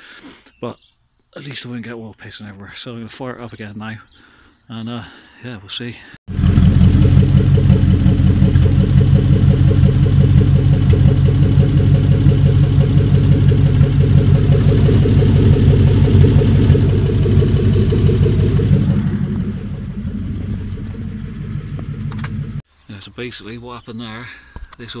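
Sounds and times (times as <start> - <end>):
car engine starting and idling: 6.3 - 22.6.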